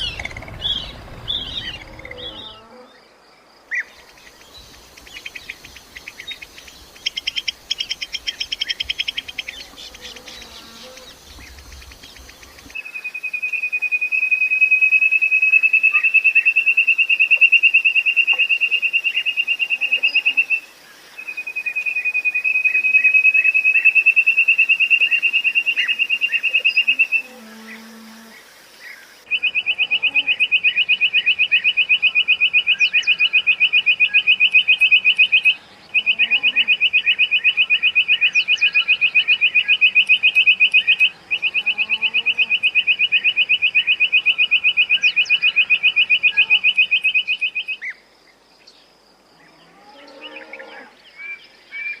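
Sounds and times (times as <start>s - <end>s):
quail chirping and trilling: 0.0s - 2.6s.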